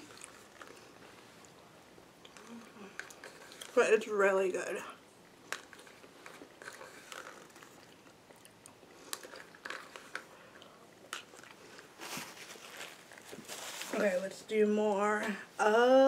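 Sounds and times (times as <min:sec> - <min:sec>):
close-up chewing: 0:00.0 - 0:03.8, 0:05.2 - 0:13.5.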